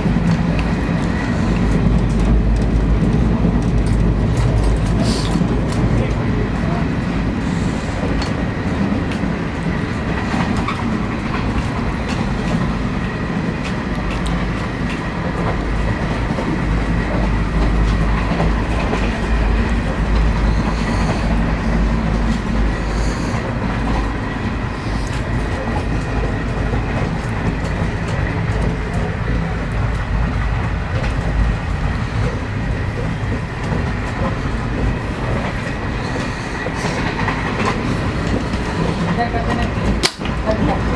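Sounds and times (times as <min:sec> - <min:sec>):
low train rumble: 0:00.0 - 0:40.9
train coach clickety-clack on track: 0:00.0 - 0:40.9
sharp clicks: 0:40.0 - 0:40.3.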